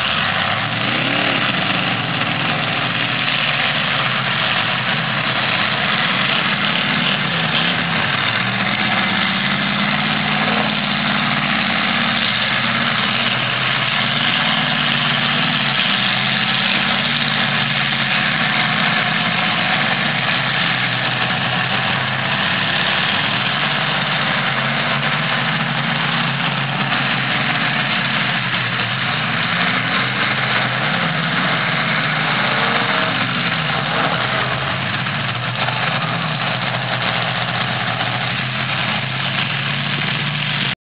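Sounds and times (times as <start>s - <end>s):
car engines revving: 0.0s - 40.8s.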